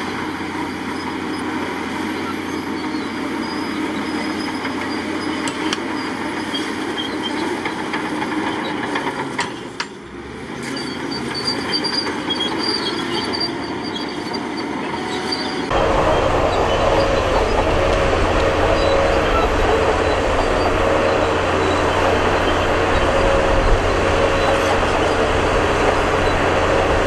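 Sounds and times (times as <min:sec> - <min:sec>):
deep engine noise: 0:15.7 - 0:27.0
diesel engine running: 0:15.7 - 0:27.0
machinery clanks and knocks: 0:15.7 - 0:27.0.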